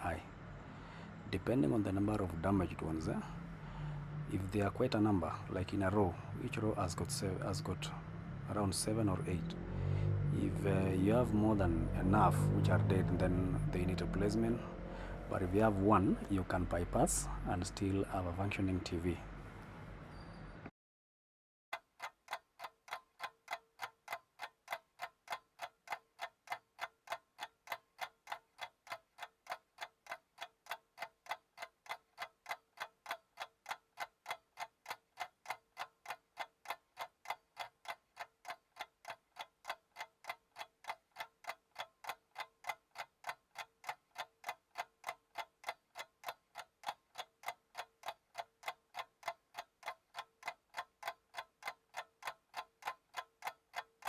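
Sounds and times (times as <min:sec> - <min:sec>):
clock ticking: 0:10.3 - 0:14.6, 0:21.7 - 0:54.0.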